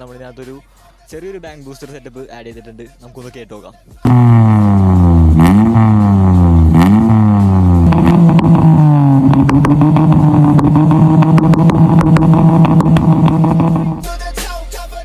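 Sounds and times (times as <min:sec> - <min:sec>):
music: 0:00.0 - 0:08.8, 0:13.8 - 0:15.0
exhaust pops and cracks: 0:04.1 - 0:14.1
car engine revving: 0:04.1 - 0:14.2.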